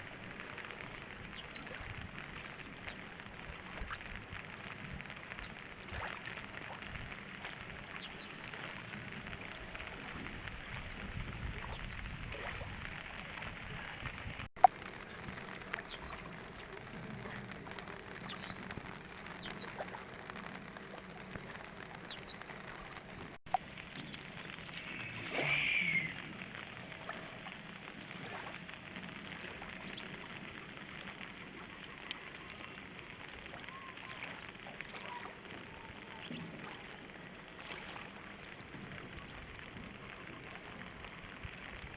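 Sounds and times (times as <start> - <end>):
faint bird chirps: 24.0 - 27.7, 29.1 - 37.0.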